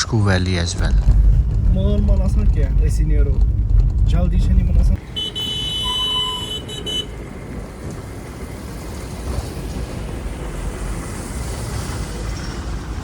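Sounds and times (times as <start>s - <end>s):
vehicle and road rumble: 0.0s - 13.0s
vehicle horn: 5.0s - 7.2s.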